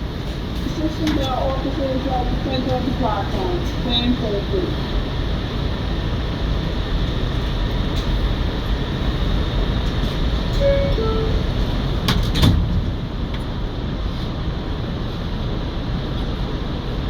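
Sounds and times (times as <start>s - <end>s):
subway car rumble: 0.0s - 17.0s
sliding doors closing knocks: 10.5s - 13.5s.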